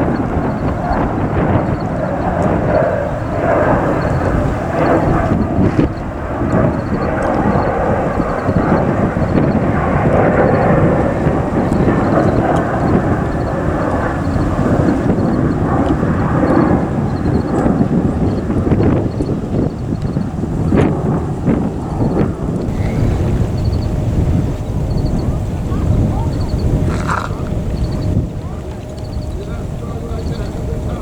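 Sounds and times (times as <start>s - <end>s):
jet airliner engines running: 0.0s - 31.0s.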